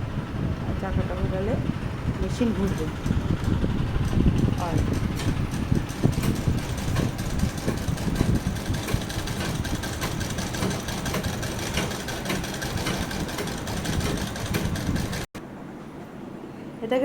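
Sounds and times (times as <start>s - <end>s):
sewing machine clattering: 2.2s - 15.3s.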